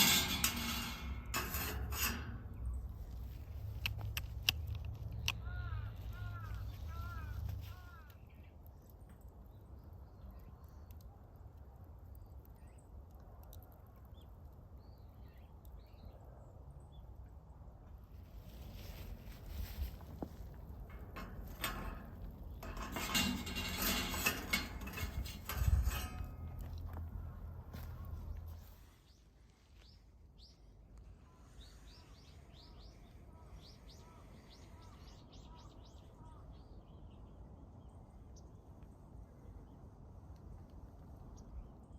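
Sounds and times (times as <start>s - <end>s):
small birds chirping: 5.0s - 17.3s.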